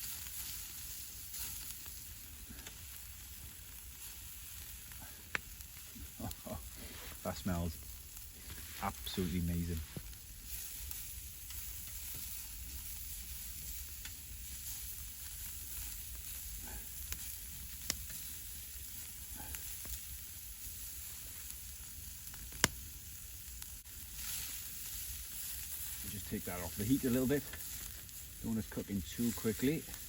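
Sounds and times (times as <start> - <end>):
meat sizzling: 0.0 - 30.0.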